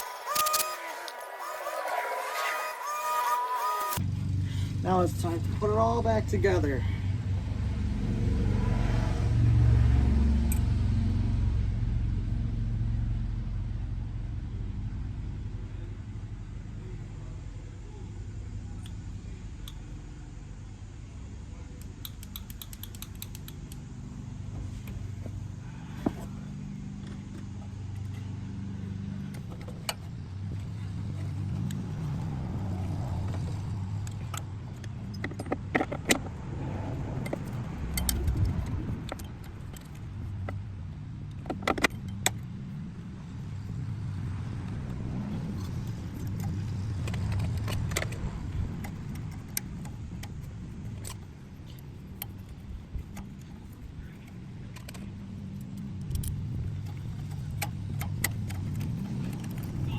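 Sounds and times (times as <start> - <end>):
metal parts and tools clinking: 0.0 - 1.2, 21.8 - 23.8, 45.5 - 59.9
steady low rumble: 4.0 - 59.9.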